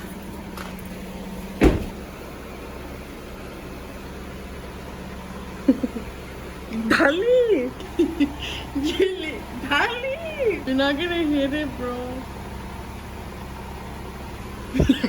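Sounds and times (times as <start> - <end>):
vehicle humming: 0.0 - 15.0
sharp thud: 1.6 - 2.0.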